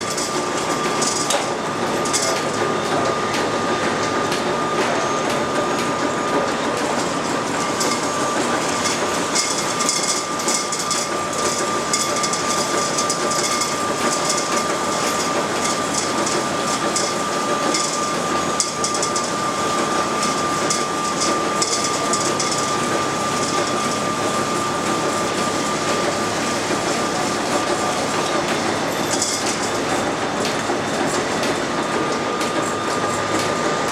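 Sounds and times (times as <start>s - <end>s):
constant high whine: 0.0s - 33.9s
lathe and shaper clattering: 0.0s - 33.9s.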